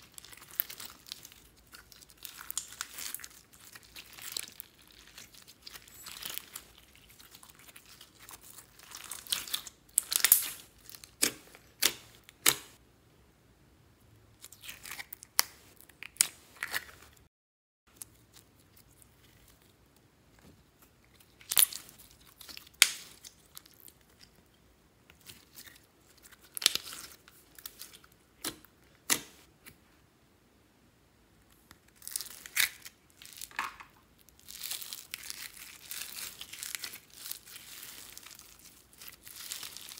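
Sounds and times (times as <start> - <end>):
slime crackling and popping by hand: 0.0 - 12.8, 20.8 - 24.4, 25.1 - 29.4, 31.5 - 39.9.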